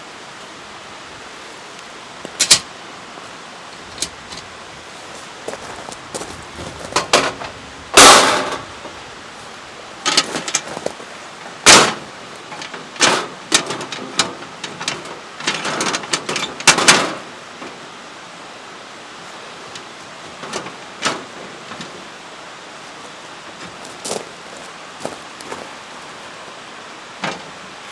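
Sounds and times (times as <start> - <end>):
scraping or rustling: 3.8 - 17.8, 19.6 - 22.1
knocks and clatters: 5.6 - 8.9, 10.0 - 11.0, 11.6 - 17.8, 19.7 - 22.0.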